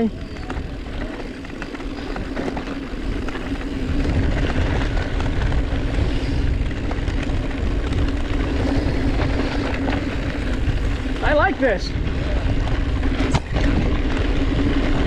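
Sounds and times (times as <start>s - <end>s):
bike tyres and drivetrain hum: 0.0s - 15.0s
wind buffeting microphone: 0.0s - 15.0s.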